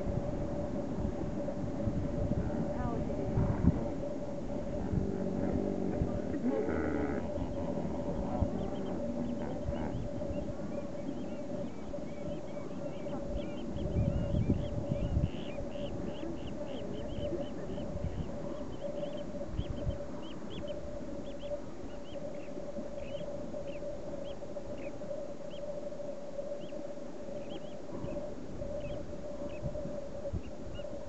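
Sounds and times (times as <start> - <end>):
low rumble: 0.0 - 21.0
steady hum: 0.0 - 31.0
bird chirping: 7.0 - 25.6, 27.4 - 28.2.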